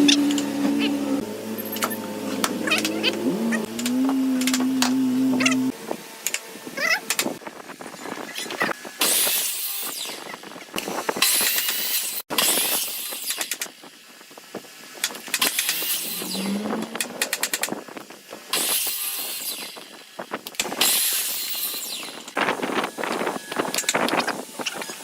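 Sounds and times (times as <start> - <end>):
power tool whining on wood: 0.0 - 6.3, 15.2 - 25.0.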